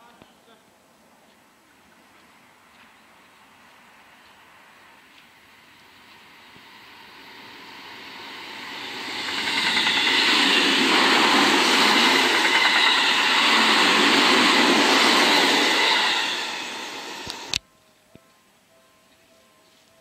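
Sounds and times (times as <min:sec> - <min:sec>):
train wheels running on rails: 0:03.6 - 0:17.6.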